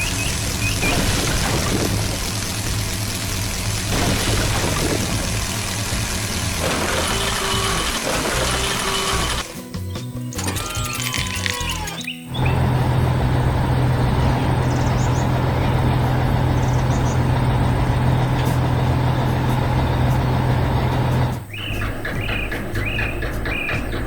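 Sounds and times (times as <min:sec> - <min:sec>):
bird-like chirps: 0:00.0 - 0:01.1, 0:10.2 - 0:12.6, 0:16.5 - 0:17.6, 0:20.8 - 0:24.0
heavy vehicle engine humming: 0:00.0 - 0:09.6, 0:11.5 - 0:24.0
even ticking: 0:10.3 - 0:24.0.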